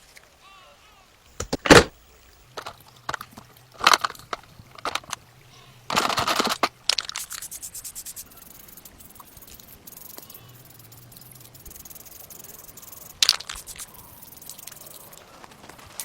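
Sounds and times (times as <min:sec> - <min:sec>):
quick even ticks: 0:01.3 - 0:15.3
clicks and knocks on model car: 0:01.4 - 0:01.9, 0:02.6 - 0:05.2, 0:05.9 - 0:07.1.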